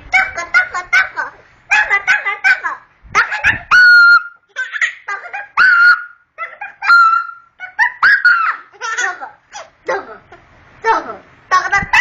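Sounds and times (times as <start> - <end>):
child squealing laughter: 3.4 - 9.7.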